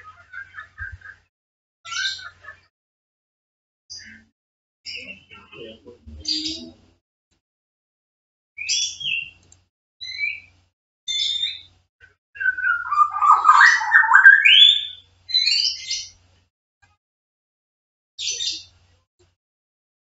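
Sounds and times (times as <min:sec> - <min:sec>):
bird chirping short high calls: 0:12.4 - 0:16.1
lower warbling bird calls: 0:12.4 - 0:16.1.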